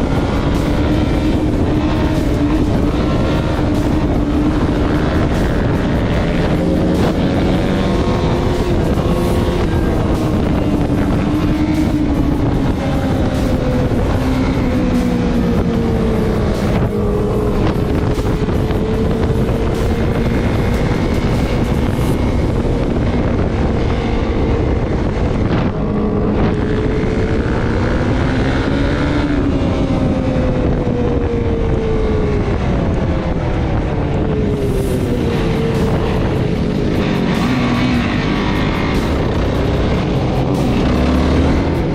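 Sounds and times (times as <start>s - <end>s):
off-road vehicle engine running: 0.0s - 41.9s
wind noise on microphone: 0.0s - 41.9s.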